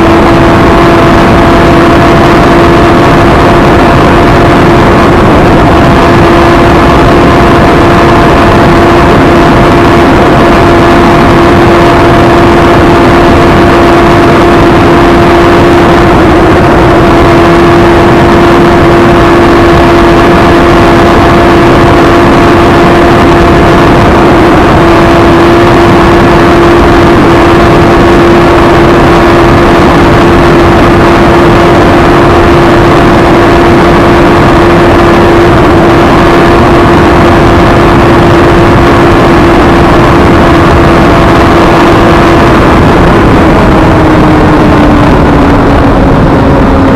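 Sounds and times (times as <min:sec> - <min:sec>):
motorcycle engine at high revs: 0:00.0 - 0:46.9
wind rushing over microphone: 0:00.0 - 0:46.9.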